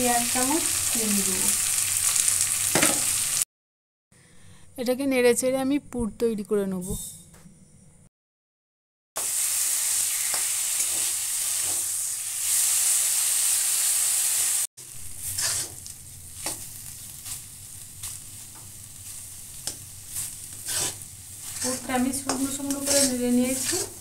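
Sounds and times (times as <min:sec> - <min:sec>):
filling sizzling in oil: 0:00.0 - 0:03.4, 0:09.2 - 0:24.0
spatula scraping and tapping pan: 0:19.6 - 0:24.0.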